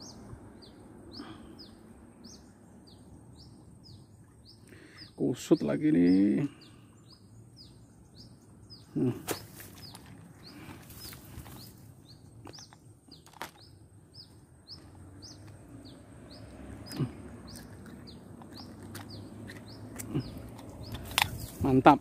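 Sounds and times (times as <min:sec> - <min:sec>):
small bird chirping: 0:00.0 - 0:22.0
rustling of grass: 0:09.0 - 0:13.7, 0:18.9 - 0:22.0.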